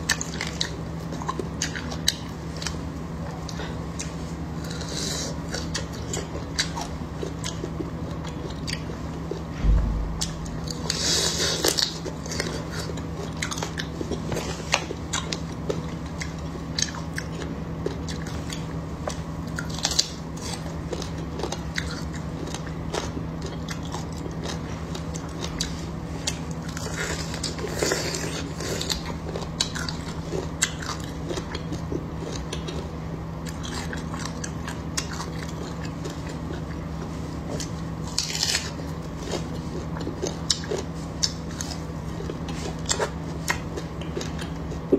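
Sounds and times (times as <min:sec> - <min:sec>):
crunchy chewing of fried meat: 0:00.0 - 0:44.9
low thump: 0:09.6 - 0:11.3.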